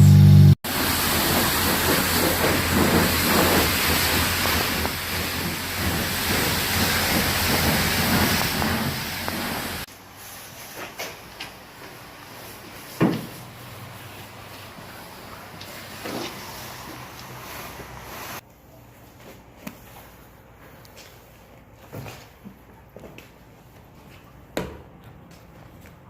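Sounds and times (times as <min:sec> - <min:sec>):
low hum: 0:00.0 - 0:08.8
high-pressure water spray hissing: 0:00.7 - 0:10.6, 0:12.0 - 0:18.4.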